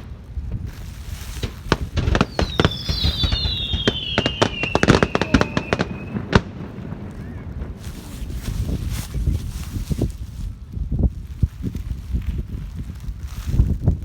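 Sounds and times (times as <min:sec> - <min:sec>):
firework bang: 0:00.0 - 0:09.0
fireworks crackling pops: 0:00.0 - 0:14.0
firework whistle sliding down: 0:02.0 - 0:06.4.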